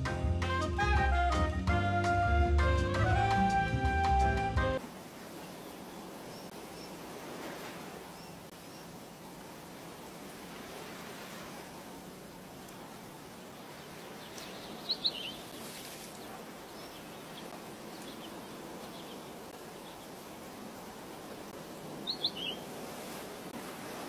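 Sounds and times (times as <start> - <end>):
background hiss: 4.8 - 24.0
small bird chirping: 14.2 - 20.1, 22.0 - 22.6.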